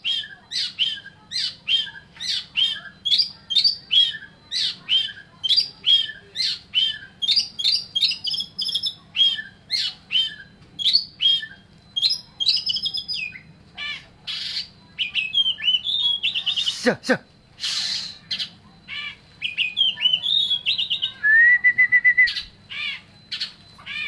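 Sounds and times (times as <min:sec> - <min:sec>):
bird calling harsh notes: 0:17.6 - 0:21.2.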